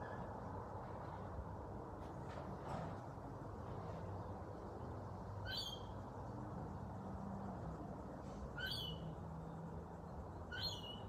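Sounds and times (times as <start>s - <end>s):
bird calling: 5.4s - 6.0s, 8.6s - 9.0s, 10.5s - 11.0s.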